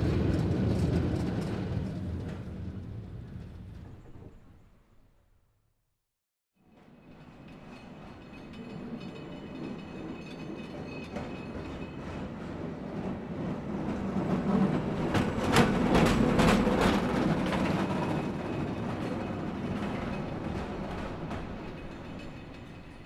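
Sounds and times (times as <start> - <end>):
rail vehicle passing: 0.0 - 5.0, 6.7 - 23.0
wheels clacking over rail joints: 13.8 - 23.0.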